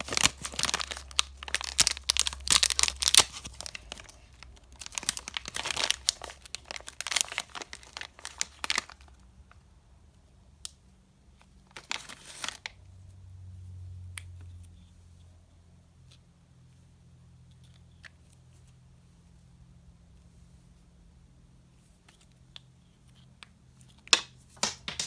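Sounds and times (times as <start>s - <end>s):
candy wrapper crinkling: 0.0s - 9.2s, 11.7s - 12.8s, 24.1s - 25.0s.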